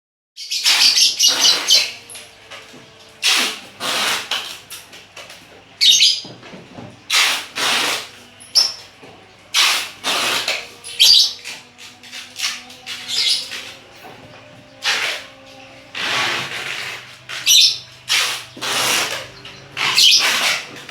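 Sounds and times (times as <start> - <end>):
lovebirds chirping harshly: 0.4 - 2.2, 5.8 - 6.3, 9.5 - 14.0, 14.8 - 20.8.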